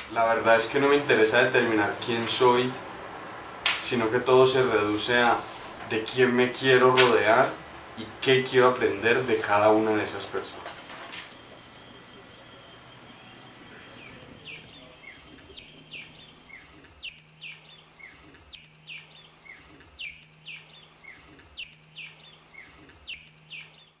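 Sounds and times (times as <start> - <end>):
faint low hum: 0.0 - 24.0
bird chirping: 11.0 - 24.0.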